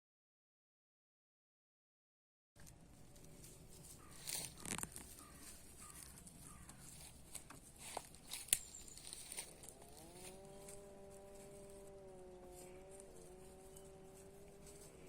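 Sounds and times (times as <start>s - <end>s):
scratchy clicks and rustles: 2.6s - 10.8s.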